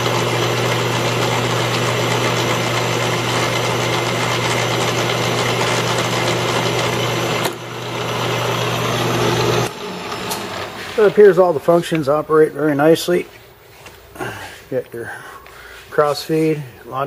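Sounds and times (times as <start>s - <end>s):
mill drill spindle whirring: 0.0s - 12.6s.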